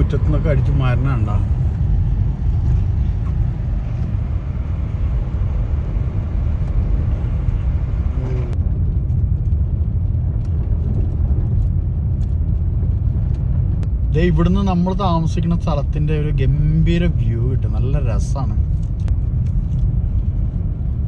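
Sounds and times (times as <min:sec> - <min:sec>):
car driving on snow: 0:00.0 - 0:21.0.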